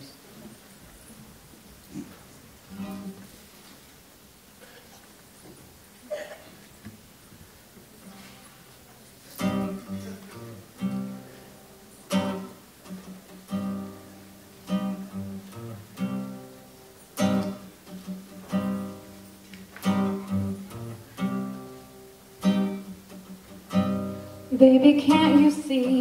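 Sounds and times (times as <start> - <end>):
acoustic guitar strummed chords: 2.7 - 3.3, 9.4 - 26.0.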